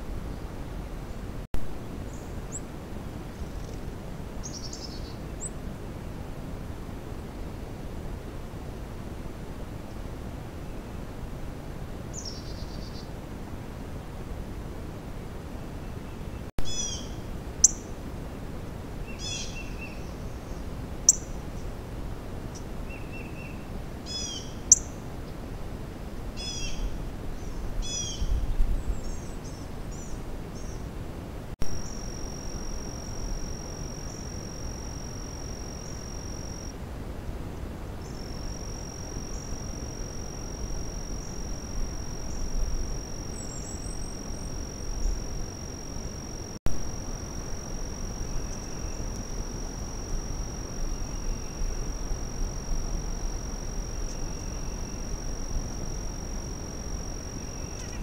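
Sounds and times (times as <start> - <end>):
steady high-pitched whine: 16.4 - 58.0.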